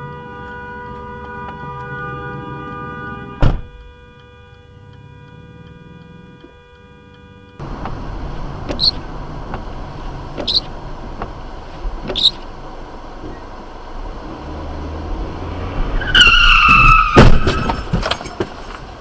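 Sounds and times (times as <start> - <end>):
road noise: 0.0 - 19.0
car collision bang: 3.4 - 3.8, 15.8 - 18.6.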